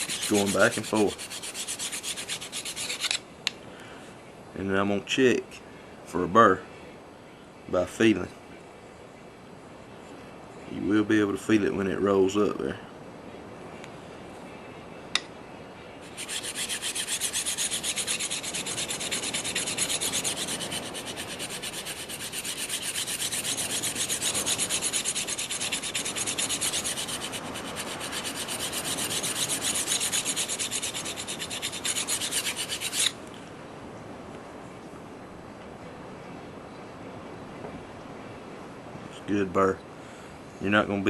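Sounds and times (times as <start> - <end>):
blade rasping on sharpening rod: 0.0 - 3.2, 16.0 - 33.2.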